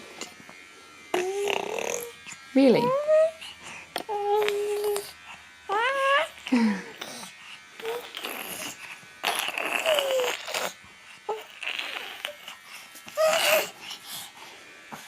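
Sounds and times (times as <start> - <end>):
baby squealing and cooing: 9.2 - 10.7, 13.2 - 13.7.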